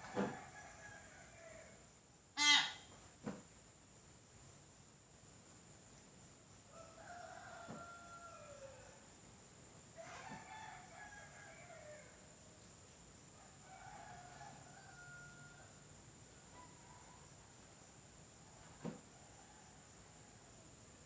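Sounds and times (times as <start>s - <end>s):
faint crowing calls: 0.0s - 3.4s, 6.6s - 9.2s, 9.9s - 12.6s, 13.3s - 17.7s.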